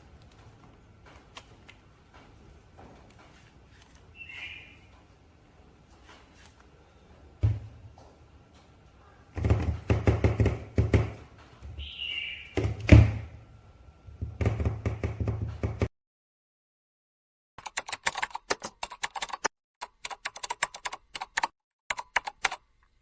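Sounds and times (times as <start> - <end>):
rapid clicking and tapping: 9.4 - 11.5, 14.1 - 15.9.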